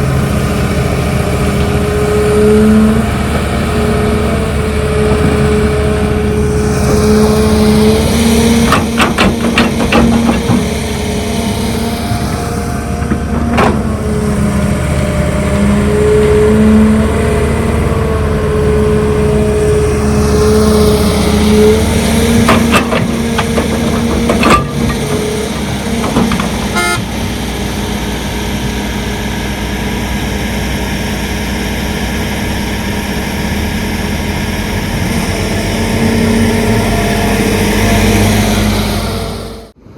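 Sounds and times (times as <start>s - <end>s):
diesel earthmover engine under load: 0.0s - 39.9s
sharp knocks: 8.5s - 10.9s, 22.1s - 27.1s.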